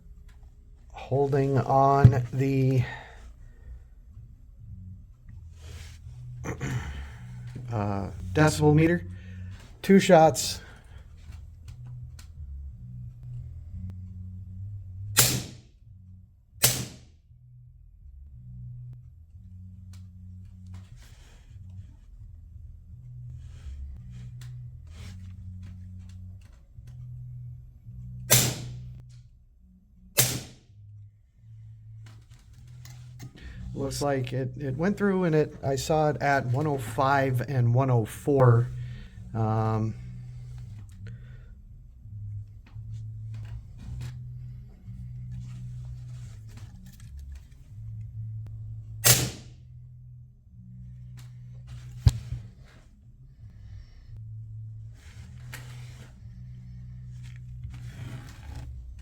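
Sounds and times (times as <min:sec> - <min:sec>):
steady low hum: 0:00.0 - 0:59.0
air pistol shots: 0:15.2 - 0:15.6, 0:16.6 - 0:17.1, 0:28.3 - 0:28.8, 0:30.2 - 0:30.6, 0:49.0 - 0:49.5.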